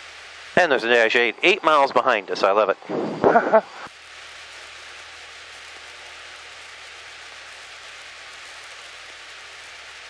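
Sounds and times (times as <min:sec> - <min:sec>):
faint aircraft engine hum: 0:00.0 - 0:04.0.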